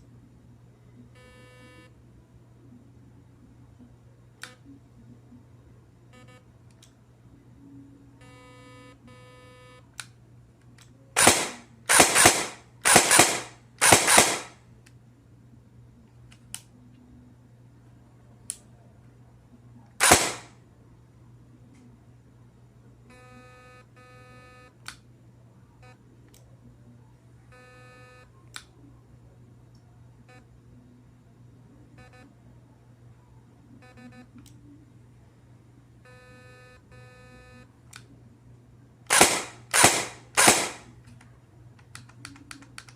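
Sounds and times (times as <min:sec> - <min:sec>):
airsoft gun firing bursts: 0:11.2 - 0:14.6, 0:20.0 - 0:20.5, 0:39.1 - 0:40.9
sharp gun clicks: 0:11.2 - 0:14.6, 0:20.0 - 0:20.5, 0:39.1 - 0:42.9.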